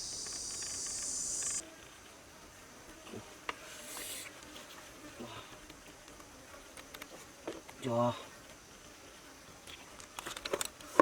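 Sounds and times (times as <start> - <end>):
insects trilling: 0.0 - 2.0
faint scattered clicks: 0.1 - 1.6.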